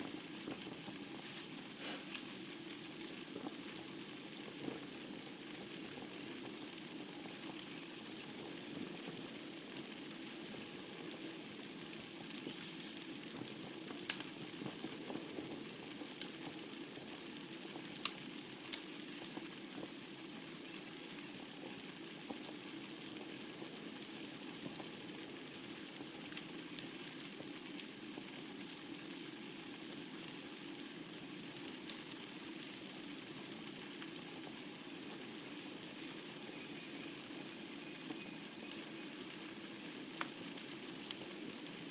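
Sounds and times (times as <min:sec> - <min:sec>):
burning logs popping: 0:00.0 - 0:41.9
wood fire crackling: 0:00.0 - 0:41.9.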